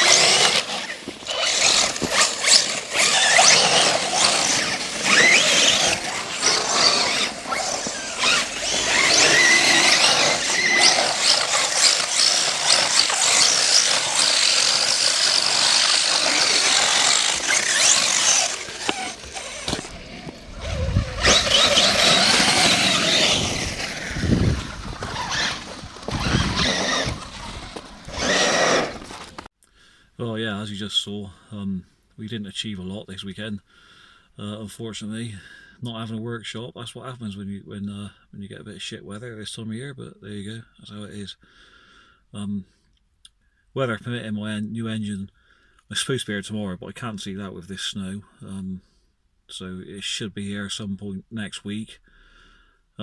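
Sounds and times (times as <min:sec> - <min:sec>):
electric motor whining: 0:00.0 - 0:29.5
low rumbles: 0:00.0 - 0:29.5.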